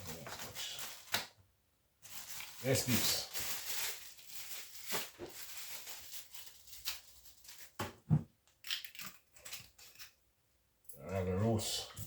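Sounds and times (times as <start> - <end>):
rustling: 2.0 - 7.8.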